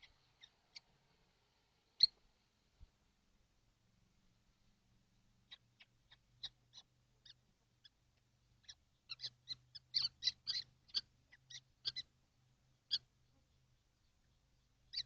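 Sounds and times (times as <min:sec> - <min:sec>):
faint low hum: 0:00.0 - 0:15.0
high-pitched bird calls: 0:05.5 - 0:08.0, 0:08.6 - 0:12.1, 0:14.0 - 0:15.0.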